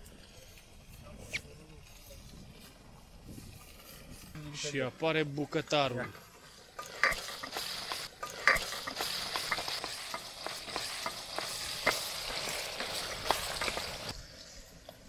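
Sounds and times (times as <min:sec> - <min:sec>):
meat sizzling in a pot: 0:06.2 - 0:14.5.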